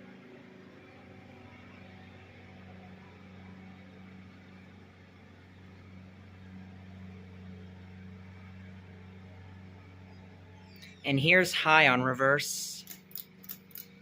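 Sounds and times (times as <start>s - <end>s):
ceiling fan motor hum: 0.0s - 14.0s.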